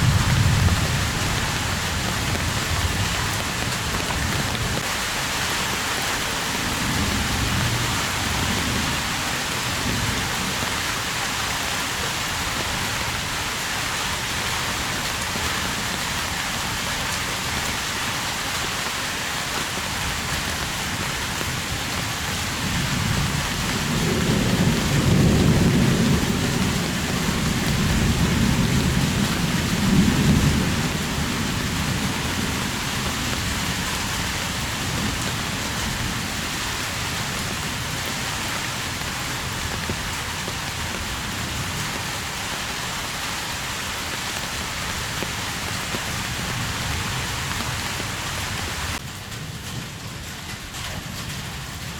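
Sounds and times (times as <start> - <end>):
rolling thunder: 0.0 - 4.8, 22.6 - 41.9
heavy rain hissing: 0.0 - 49.6.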